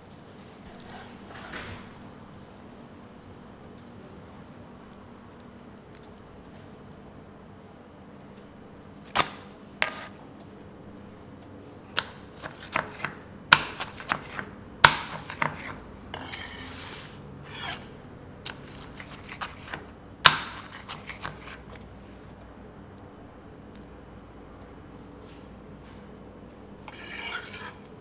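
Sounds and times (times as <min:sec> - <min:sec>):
metal utensils clanking on pans: 0:12.6 - 0:21.7, 0:26.9 - 0:27.8
metal scraping: 0:13.7 - 0:21.8, 0:26.9 - 0:27.9.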